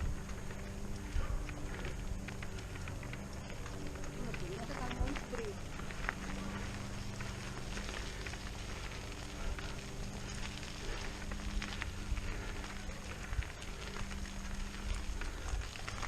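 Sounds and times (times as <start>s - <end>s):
bike tyres crackling on gravel: 0.0s - 16.0s
small clicks and rattles: 0.0s - 16.0s
steady low hum: 0.0s - 16.0s.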